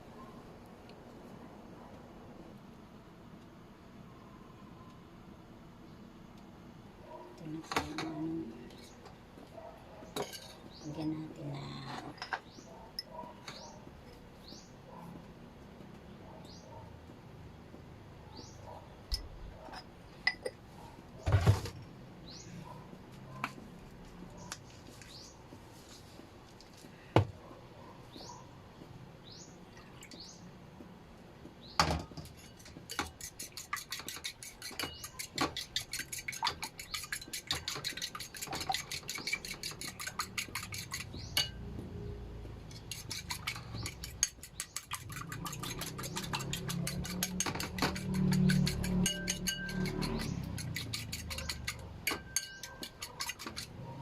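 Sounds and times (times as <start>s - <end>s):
utensil clinking against bowl: 10.2s - 10.6s, 32.2s - 41.6s, 42.8s - 53.7s.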